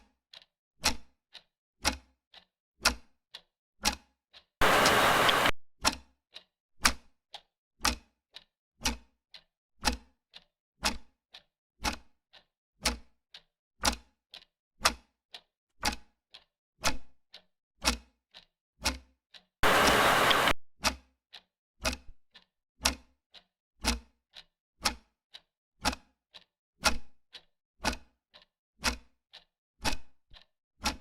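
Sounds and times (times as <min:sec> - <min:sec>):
clock ticking: 0:00.3 - 0:06.0, 0:07.3 - 0:18.5, 0:19.3 - 0:20.6, 0:21.3 - 0:31.0
burst of hiss: 0:04.6 - 0:05.5, 0:19.6 - 0:20.5.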